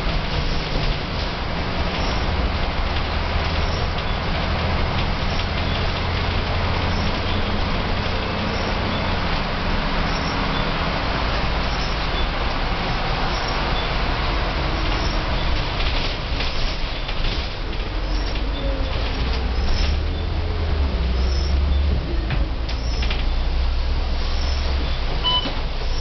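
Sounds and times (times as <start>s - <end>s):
bus diesel engine running: 0.0s - 26.0s
road noise: 0.0s - 26.0s.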